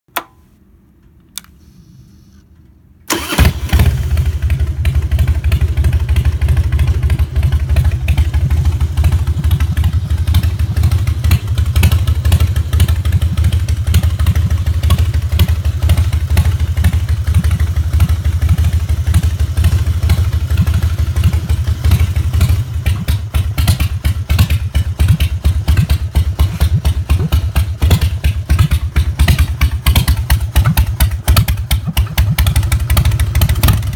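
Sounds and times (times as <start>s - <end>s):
click: 0.1s - 0.4s, 1.0s - 1.6s
motorcycle engine starting and idling: 3.1s - 33.9s.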